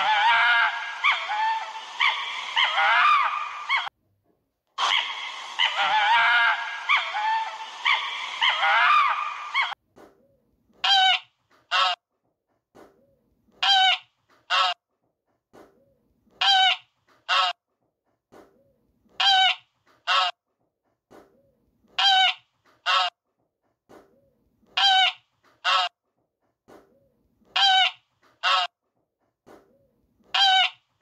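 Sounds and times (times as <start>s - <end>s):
fox yelping and whining: 0.0s - 3.9s, 4.8s - 9.8s
goose honking: 4.8s - 9.8s.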